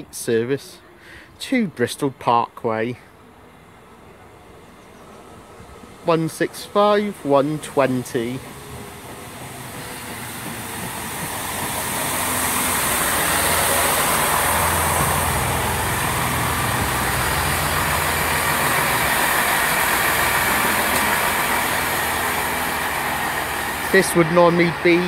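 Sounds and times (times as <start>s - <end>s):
diesel train engine hum: 0.0s - 25.0s
train rolling noise: 1.7s - 25.0s
high hiss: 5.1s - 25.0s.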